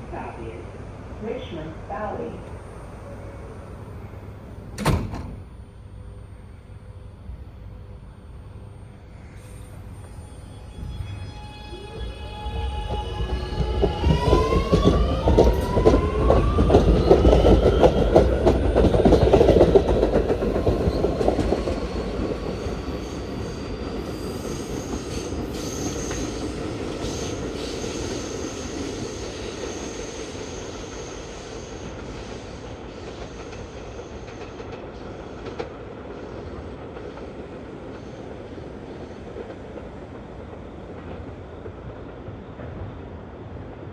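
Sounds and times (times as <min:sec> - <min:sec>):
electric train motor whine: 0:02.9 - 0:23.0.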